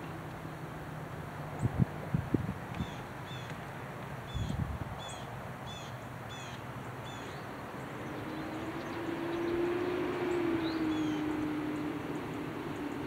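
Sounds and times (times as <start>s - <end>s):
passing vehicle engine hum: 0.0s - 13.0s
small bird chirping: 4.3s - 13.0s.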